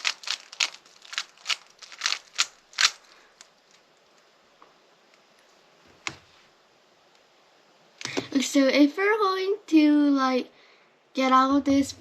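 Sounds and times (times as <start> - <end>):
puzzle cube clacking: 0.0 - 4.1.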